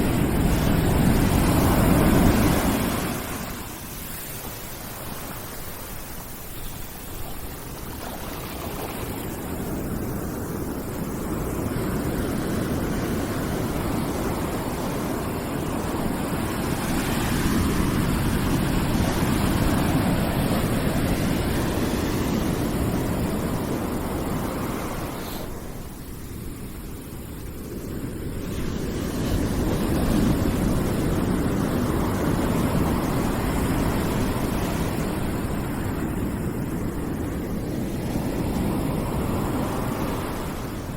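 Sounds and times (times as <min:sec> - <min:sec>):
deep rushing hiss: 0:23.6 - 0:26.6.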